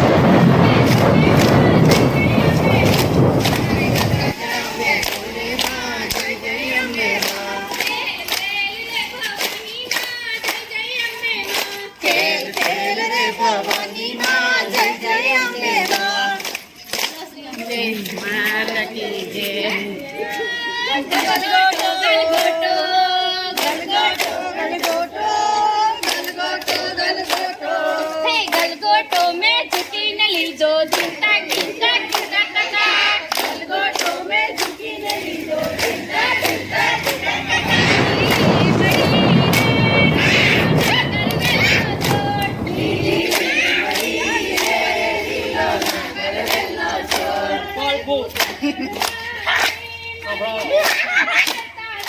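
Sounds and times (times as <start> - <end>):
voices singing together: 0.0 - 50.8.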